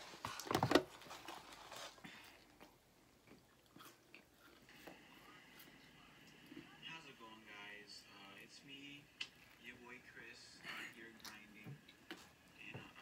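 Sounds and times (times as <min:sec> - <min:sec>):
people biting and chewing: 0:02.2 - 0:04.8.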